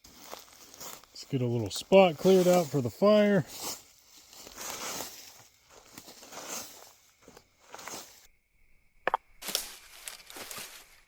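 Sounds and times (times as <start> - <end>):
dry leaves rustling: 0.0 - 8.3, 9.4 - 11.0.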